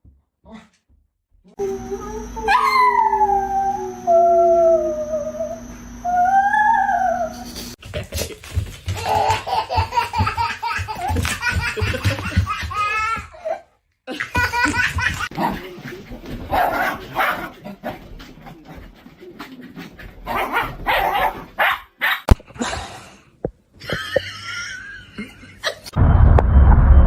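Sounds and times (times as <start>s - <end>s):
people laughing: 8.1s - 13.2s, 14.1s - 16.2s, 23.8s - 26.0s
loud low rumbling: 26.0s - 27.0s.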